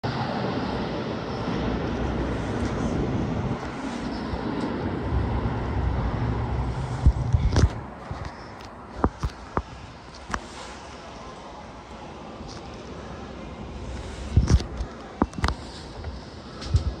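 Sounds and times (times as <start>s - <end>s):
electric train running rumble: 0.0s - 10.1s.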